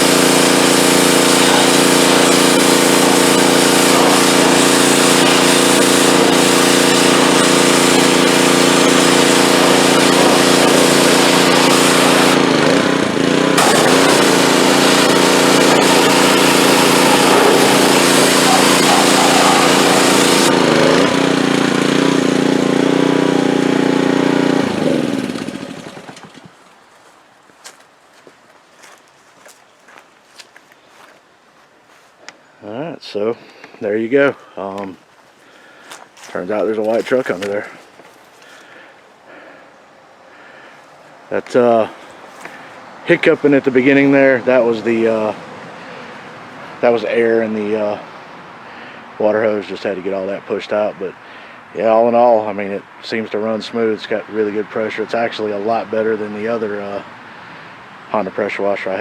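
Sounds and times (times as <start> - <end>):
high-pressure water spray hissing: 0.0 - 25.9
small gas engine running: 0.0 - 26.6.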